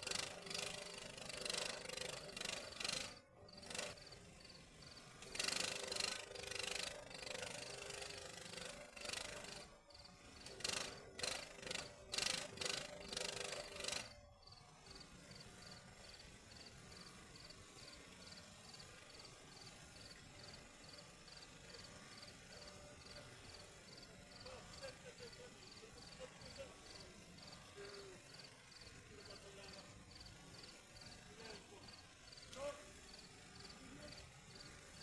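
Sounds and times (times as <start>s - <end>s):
arc welding crackling: 0.0s - 9.6s.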